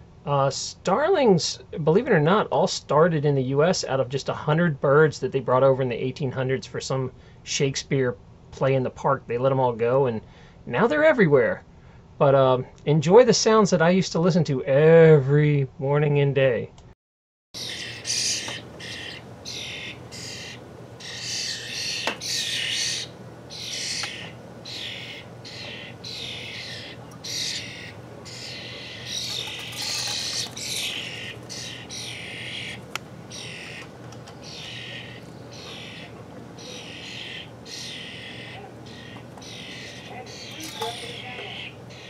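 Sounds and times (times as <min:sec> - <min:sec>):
baby starlings calling: 0:17.6 - 0:42.0.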